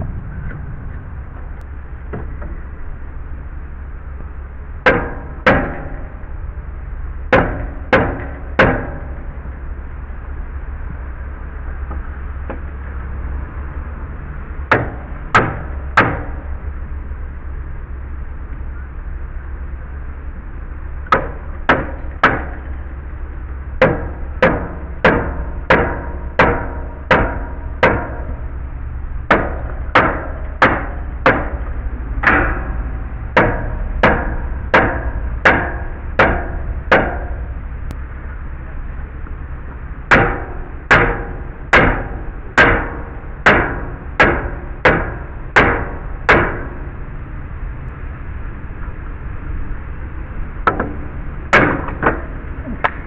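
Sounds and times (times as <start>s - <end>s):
hammer blows: 4.8s - 6.4s, 7.2s - 9.5s, 14.6s - 16.7s, 21.0s - 38.0s, 39.6s - 46.9s.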